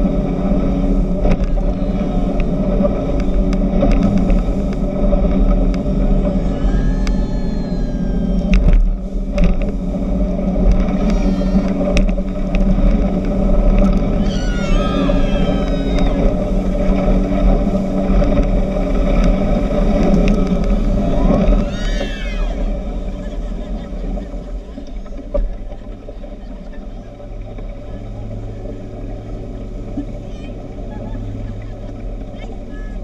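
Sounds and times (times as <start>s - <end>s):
low rumble of wind and water: 0.0s - 33.0s
speedboat engine running: 0.0s - 33.0s
high sliding squeals: 6.2s - 8.8s, 10.8s - 12.0s, 14.1s - 16.9s.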